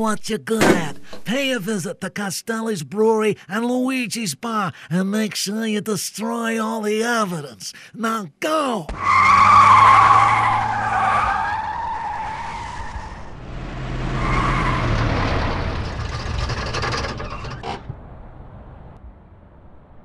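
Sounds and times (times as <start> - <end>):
tyres squealing: 8.9 - 13.1.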